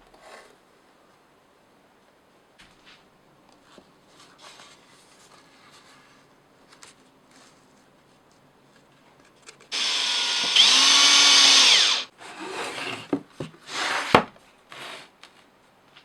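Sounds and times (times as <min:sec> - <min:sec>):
power tool motor whine: 0:09.8 - 0:12.1.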